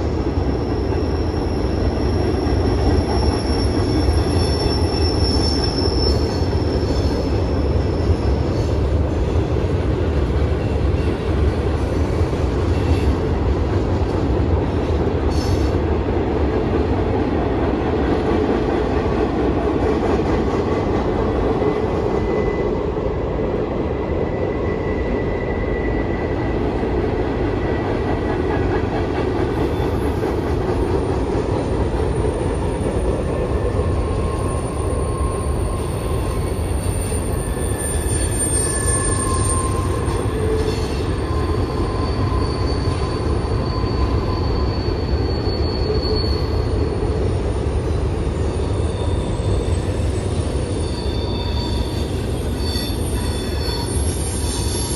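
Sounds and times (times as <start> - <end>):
train wheels rumbling on rails: 0.0 - 54.9
high-pitched wheel squeal: 0.4 - 8.6, 32.4 - 54.9.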